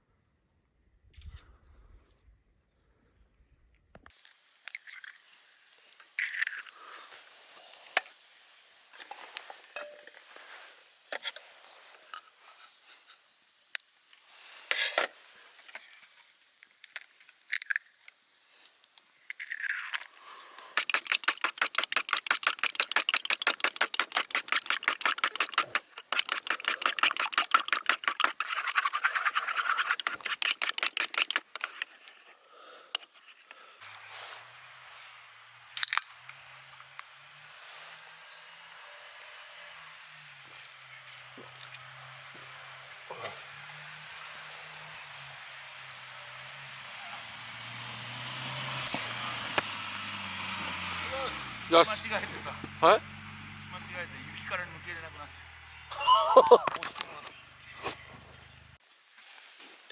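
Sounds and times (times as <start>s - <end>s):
fast even scraping strokes: 19.8s - 32.3s.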